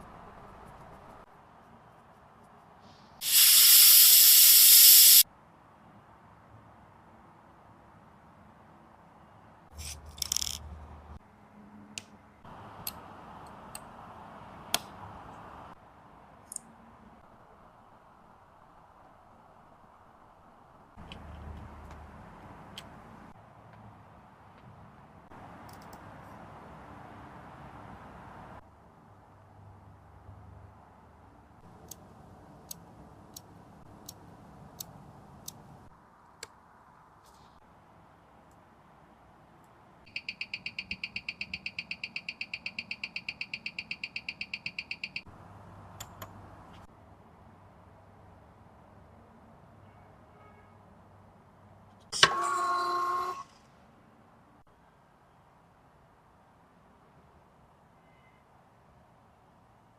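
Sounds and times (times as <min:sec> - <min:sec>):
light hiss: 0:02.7 - 0:05.2
small metal tool clicks: 0:10.1 - 0:10.6.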